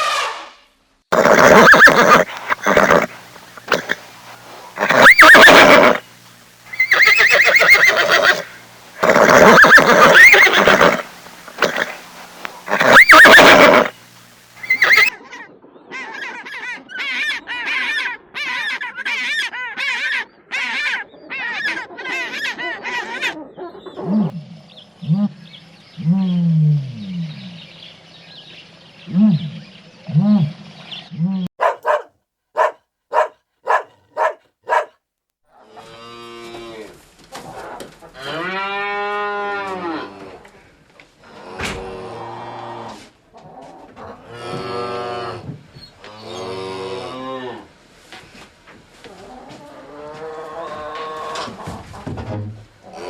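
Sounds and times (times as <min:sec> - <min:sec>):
lower falling animal calls: 0:01.1 - 0:04.0, 0:04.6 - 0:06.0, 0:06.7 - 0:14.0, 0:14.6 - 0:15.2
horse neighing: 0:01.1 - 0:04.1, 0:04.7 - 0:06.0, 0:06.7 - 0:12.0, 0:12.6 - 0:14.0, 0:14.6 - 0:15.1, 0:32.6 - 0:34.9
rapid short high animal calls: 0:01.1 - 0:06.0, 0:06.7 - 0:12.0, 0:12.6 - 0:14.0, 0:14.6 - 0:15.2.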